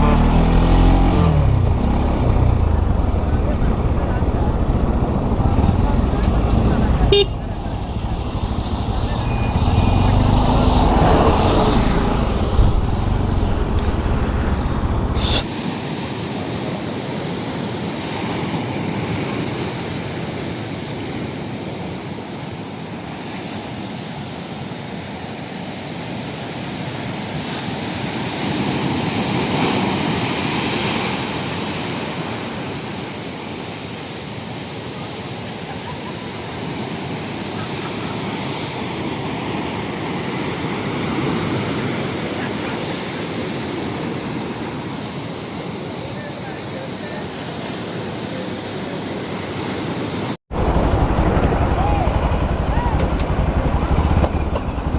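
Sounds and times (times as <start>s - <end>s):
sea surf on a beach: 15.3s - 54.8s.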